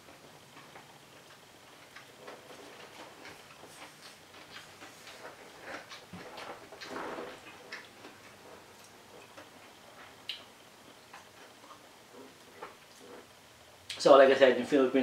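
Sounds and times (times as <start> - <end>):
crunchy chewing: 0.5 - 14.0
wet mouth noises: 2.8 - 14.0.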